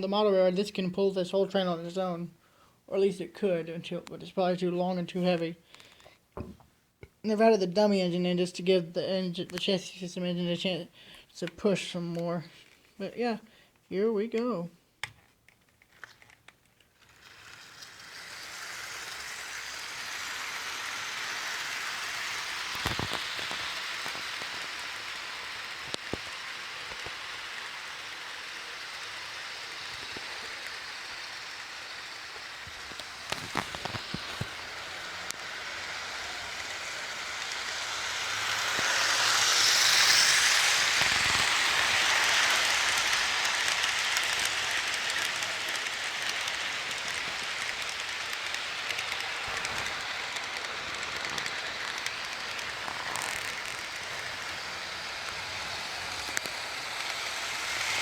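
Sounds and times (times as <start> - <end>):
model train rattling on track: 15.8 - 58.0.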